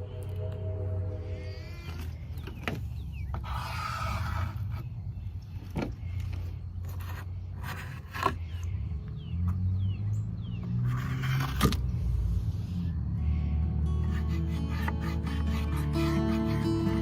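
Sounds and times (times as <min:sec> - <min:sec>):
steady low rumble: 0:00.0 - 0:03.4
wood scraping: 0:01.5 - 0:04.9, 0:05.6 - 0:08.7, 0:10.7 - 0:11.9.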